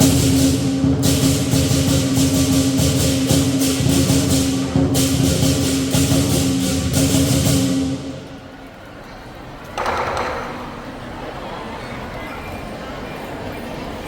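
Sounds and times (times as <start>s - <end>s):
cymbals clashing: 0.0s - 8.3s
drum beating: 0.0s - 8.3s.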